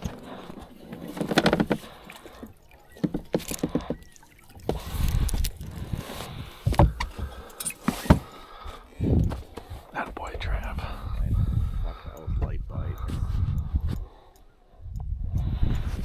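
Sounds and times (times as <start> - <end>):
gear knocking and clattering: 0.0 - 8.3
low rumbling: 9.0 - 14.1.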